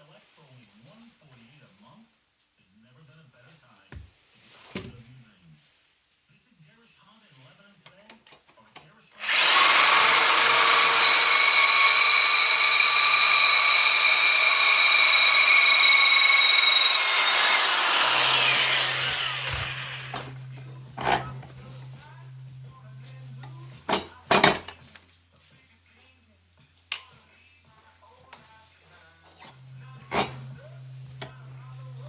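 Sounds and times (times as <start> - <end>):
power tool whining: 9.2 - 21.4.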